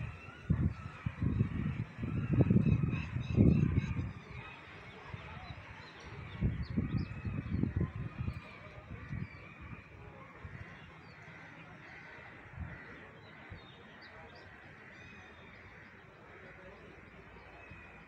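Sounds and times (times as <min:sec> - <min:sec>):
steady outdoor hiss: 0:03.3 - 0:18.0.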